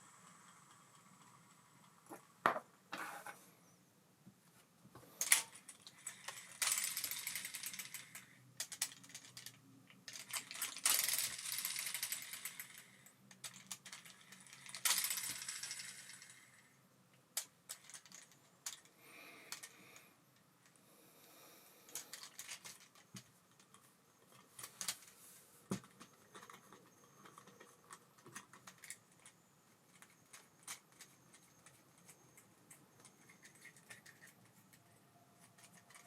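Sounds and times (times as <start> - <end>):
fishing reel metallic clicks: 5.2 - 8.3, 10.2 - 16.5.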